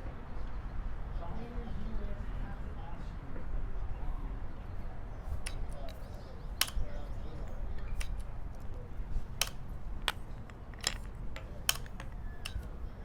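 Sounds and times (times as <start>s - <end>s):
chess pieces clacking on board: 5.4s - 6.9s, 8.0s - 12.8s.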